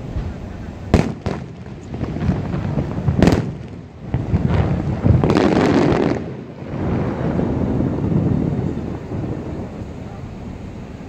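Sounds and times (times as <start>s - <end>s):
fireworks bursting: 0.0s - 10.6s
wind on microphone: 0.0s - 11.0s.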